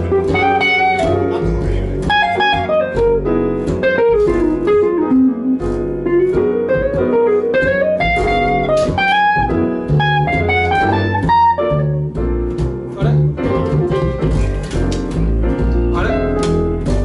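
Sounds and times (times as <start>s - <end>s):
jazz melody line: 0.0s - 17.0s
walking bass: 0.0s - 17.0s
drums: 12.2s - 17.0s.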